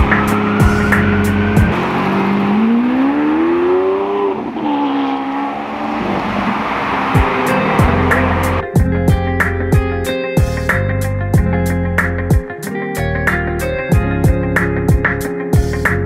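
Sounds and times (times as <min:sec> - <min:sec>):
background music with a beat: 0:00.0 - 0:01.8, 0:07.1 - 0:16.0
car engine accelerating hard: 0:00.0 - 0:08.6.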